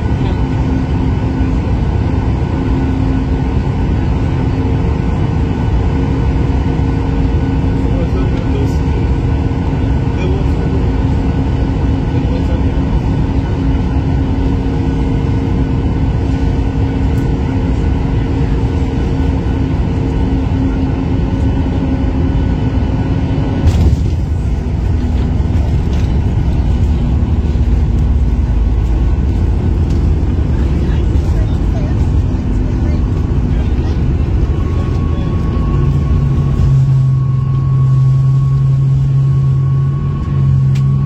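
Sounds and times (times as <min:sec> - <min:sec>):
airliner cabin engine drone: 0:00.0 - 0:41.0
sudden jolt: 0:23.6 - 0:24.7.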